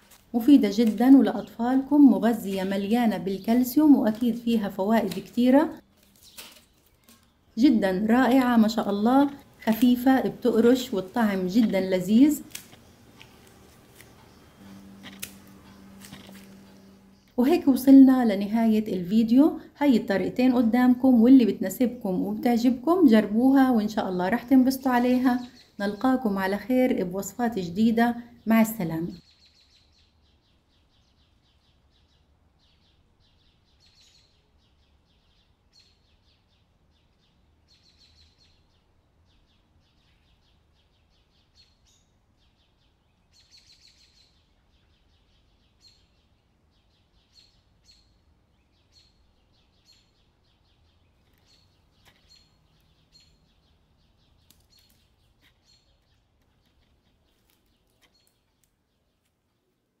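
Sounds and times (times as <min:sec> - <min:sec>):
low hum: 0:07.8 - 0:17.6
faint high bird chirps: 0:27.3 - 0:59.7.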